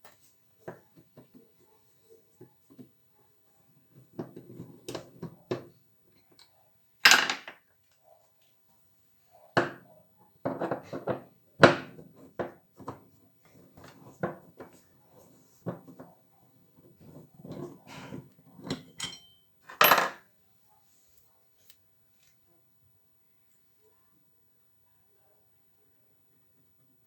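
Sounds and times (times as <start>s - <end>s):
metal parts knocking and clinking: 18.7s - 20.2s.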